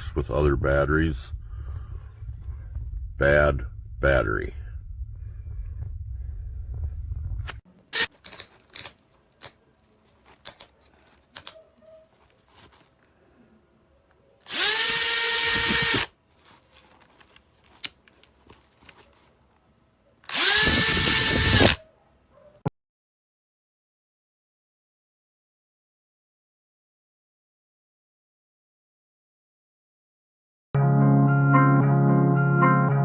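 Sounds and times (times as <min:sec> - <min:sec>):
tool handling clicks: 0:08.0 - 0:11.7
cordless drill motor whine: 0:14.5 - 0:16.1, 0:20.3 - 0:21.8.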